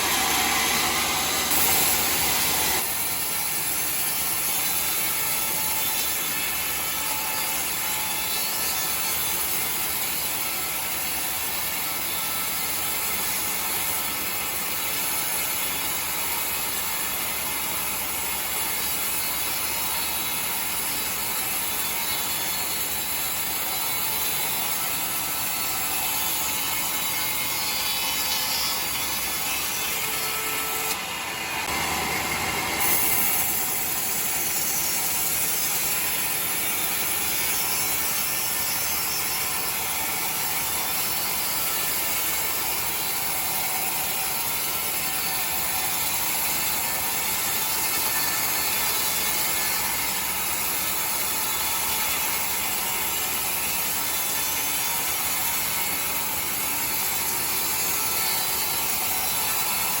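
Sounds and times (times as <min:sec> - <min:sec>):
sawmill saw cutting log: 0:00.0 - 1:00.0.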